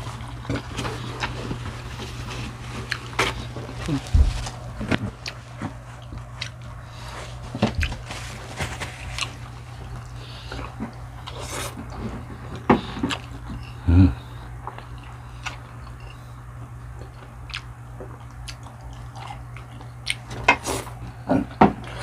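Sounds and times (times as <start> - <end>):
person chewing and biting: 0.0 - 8.1, 12.8 - 13.8, 14.6 - 21.0
steady low hum: 0.0 - 22.0.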